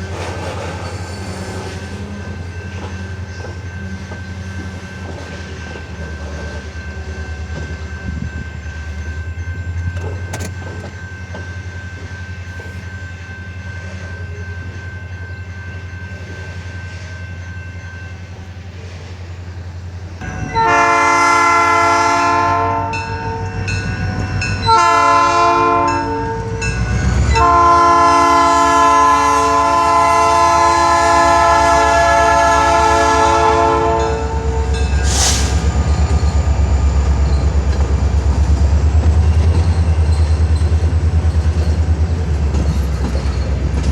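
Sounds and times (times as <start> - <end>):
diesel locomotive rumbling: 0.0 - 43.9
train air horn blasts: 20.2 - 36.0.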